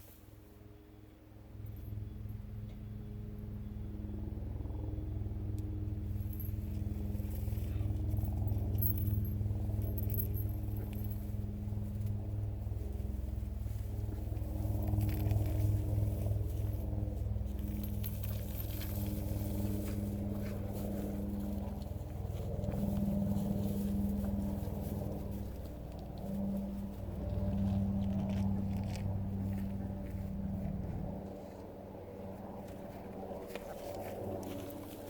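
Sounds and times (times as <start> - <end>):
helicopter droning: 0.6 - 35.0.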